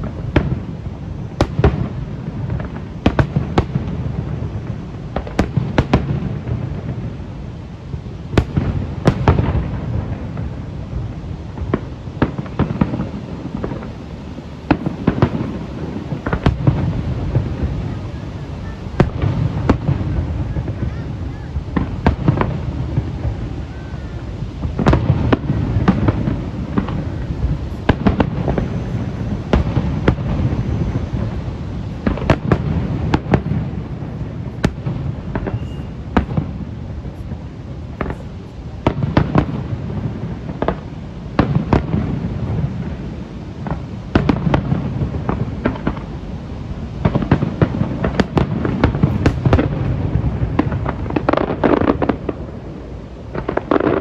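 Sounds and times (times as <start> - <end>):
fireworks bangs and crackles: 0.0 - 54.0
echoing booms rumble: 8.4 - 38.1.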